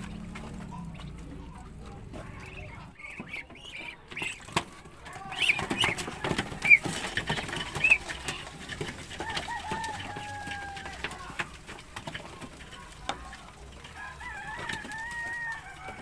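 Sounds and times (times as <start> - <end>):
poultry calling: 0.4 - 11.2.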